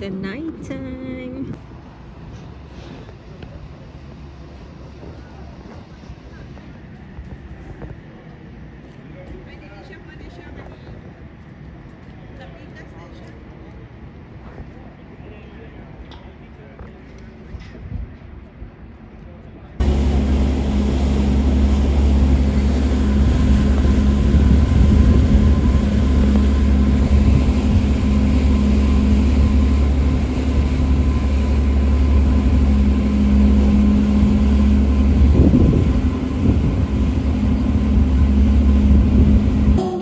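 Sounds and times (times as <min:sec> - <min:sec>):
loud engine drone: 0:19.8 - 0:40.0
steady tones: 0:19.8 - 0:40.0.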